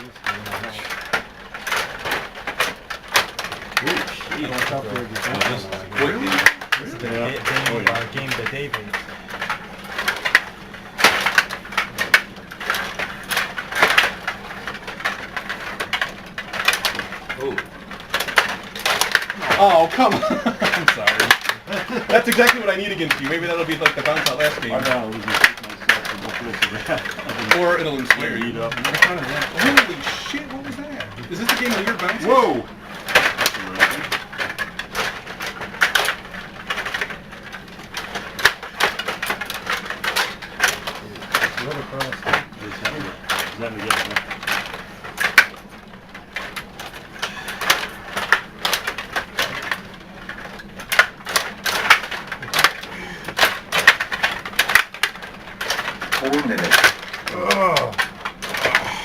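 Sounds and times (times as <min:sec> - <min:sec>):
table hockey rods clicking: 0:00.0 - 0:59.0.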